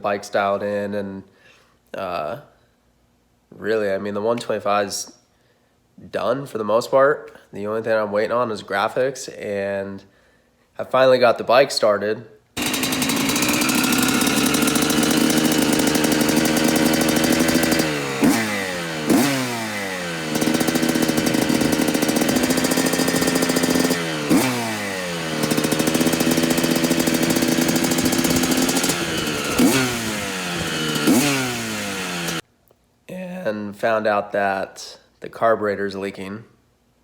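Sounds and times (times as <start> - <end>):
two-stroke engine blipping: 12.6 - 32.4.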